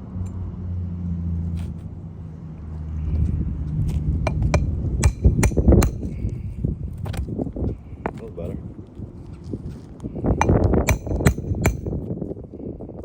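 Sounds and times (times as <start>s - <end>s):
hand tools knocking on shingles: 4.3s - 6.2s, 10.4s - 12.0s.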